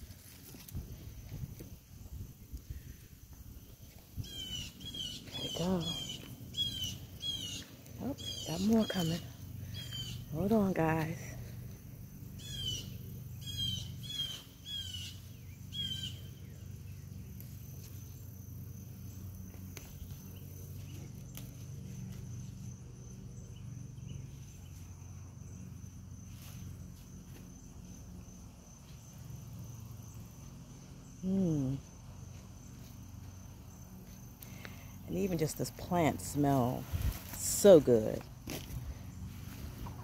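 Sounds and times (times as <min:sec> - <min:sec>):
crickets droning: 0:00.0 - 0:40.0
low background hum: 0:00.0 - 0:40.0.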